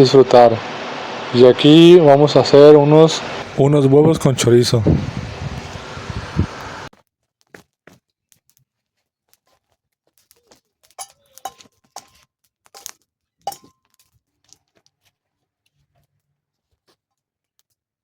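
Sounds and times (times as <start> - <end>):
cooking gear clinking: 10.8 - 14.1.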